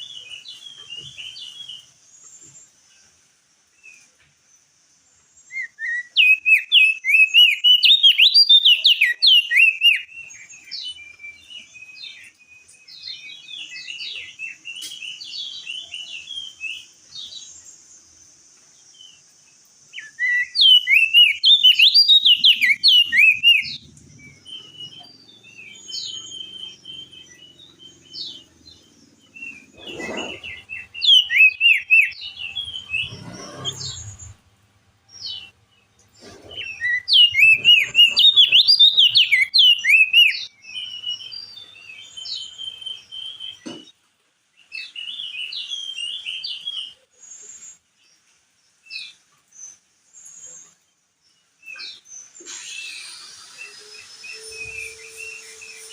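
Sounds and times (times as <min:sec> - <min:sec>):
bird chirpy whistled song: 0:00.0 - 0:02.8, 0:05.3 - 0:17.8, 0:18.9 - 0:34.4, 0:36.2 - 0:44.0, 0:44.6 - 0:47.8, 0:51.5 - 0:55.9
soft bird calls: 0:00.0 - 0:34.5, 0:35.2 - 0:44.0
faint high hiss: 0:00.0 - 0:55.9.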